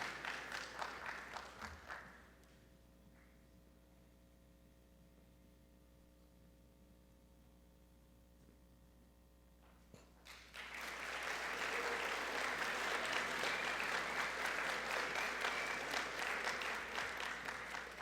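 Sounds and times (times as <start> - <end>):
audience applauding: 0.0 - 2.2, 10.3 - 18.0.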